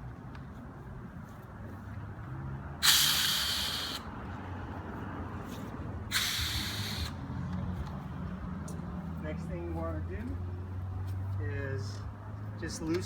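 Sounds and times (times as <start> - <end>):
air hissing out of a valve: 2.8 - 4.1, 6.1 - 7.2.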